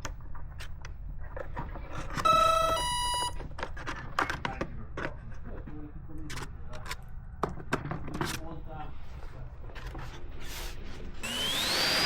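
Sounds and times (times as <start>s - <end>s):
two-tone electronic beeps: 2.2s - 3.4s.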